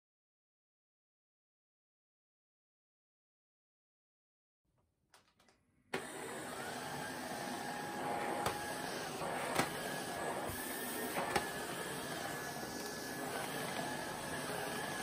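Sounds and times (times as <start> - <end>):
vacuum cleaner whining motor: 5.9 - 15.0.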